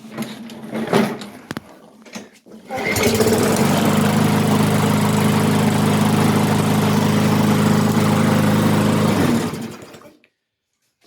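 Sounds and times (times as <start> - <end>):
lawn mower engine running: 2.7 - 10.1.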